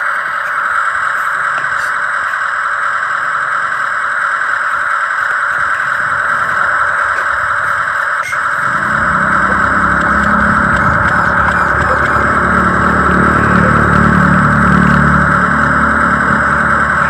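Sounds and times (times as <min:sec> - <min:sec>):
high-pitched motor whine: 0:08.3 - 0:17.0
low engine-like rumble: 0:08.6 - 0:17.0.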